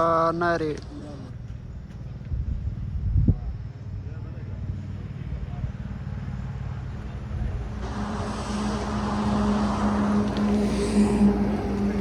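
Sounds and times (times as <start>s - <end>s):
road noise: 0.0s - 12.0s
vehicle engine running: 1.1s - 12.0s.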